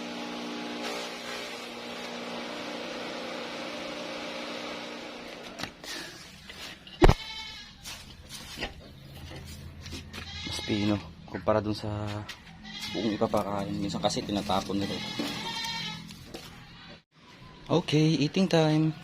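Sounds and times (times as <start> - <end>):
goat bleating: 7.0 - 7.8, 10.1 - 11.1, 12.5 - 16.7.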